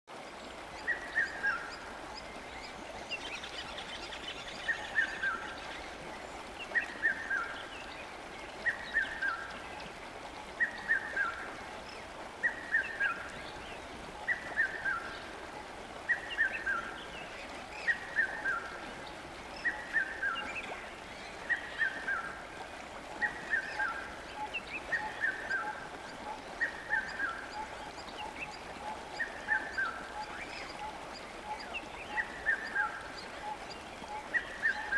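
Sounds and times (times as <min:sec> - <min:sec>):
river water rushing: 0:00.1 - 0:34.9.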